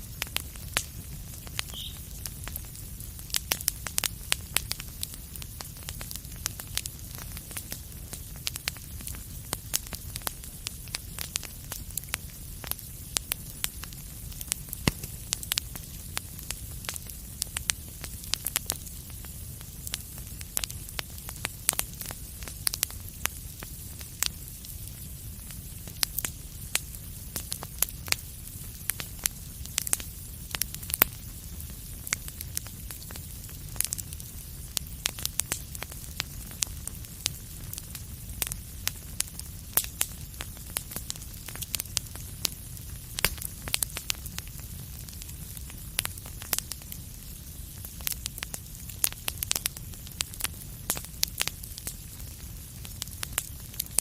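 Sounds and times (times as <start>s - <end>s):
fire crackles and pops: 0.0s - 54.0s
wood fire rumble and hiss: 0.0s - 54.0s.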